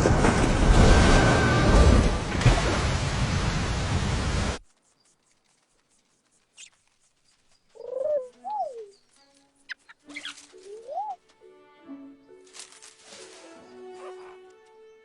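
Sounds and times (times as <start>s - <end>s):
cooing bird calls: 7.7s - 11.2s.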